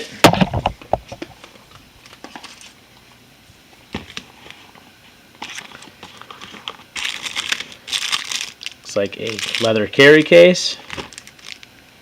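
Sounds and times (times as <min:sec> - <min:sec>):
packaging crinkling and rustling: 0:01.4 - 0:02.8, 0:05.4 - 0:11.8.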